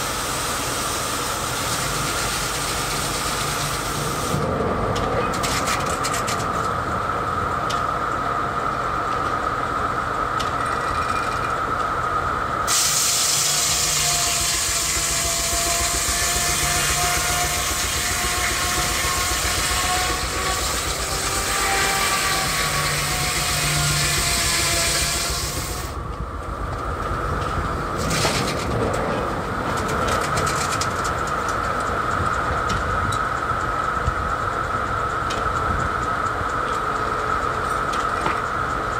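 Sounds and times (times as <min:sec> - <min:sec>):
saw cutting through log: 0:01.4 - 0:04.4, 0:12.7 - 0:26.0
saw blade whining: 0:12.7 - 0:26.0.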